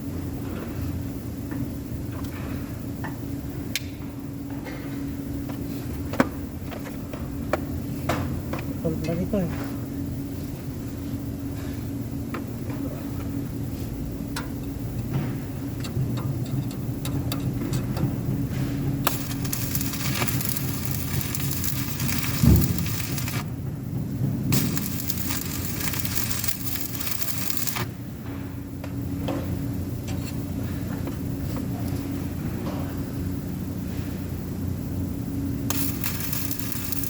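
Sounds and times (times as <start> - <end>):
machine hum: 6.4 - 37.0
welding arc sizzling: 13.4 - 30.6, 33.4 - 37.0.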